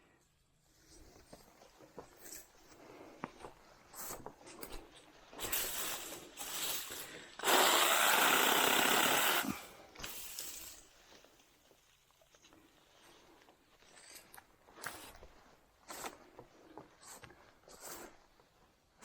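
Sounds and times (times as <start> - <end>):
mini chainsaw cutting: 5.5 - 10.8.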